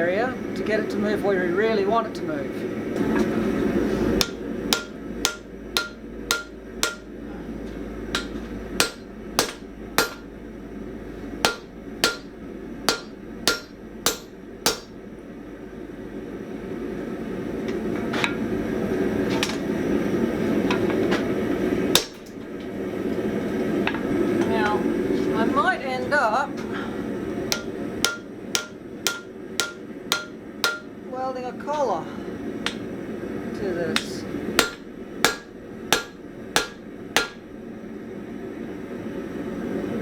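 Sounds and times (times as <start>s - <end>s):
hammer striking steel on anvil: 4.2s - 10.3s, 11.4s - 15.0s, 21.9s - 22.4s, 27.5s - 30.9s, 34.0s - 37.5s.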